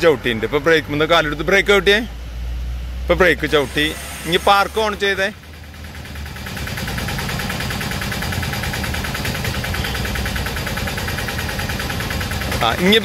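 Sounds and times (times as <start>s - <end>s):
car engine idling: 4.5s - 13.0s.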